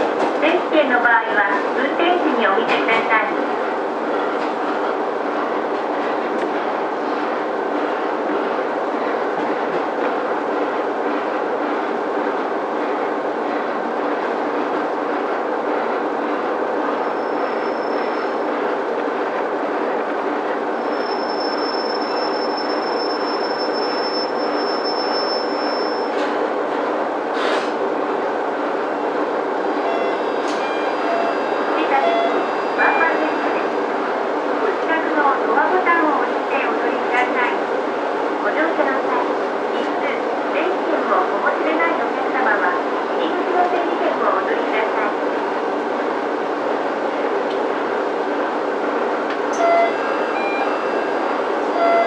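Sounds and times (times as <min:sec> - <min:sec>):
diesel railcar engine and track rumble: 0:00.0 - 0:52.0
high brake squeal: 0:20.8 - 0:26.2.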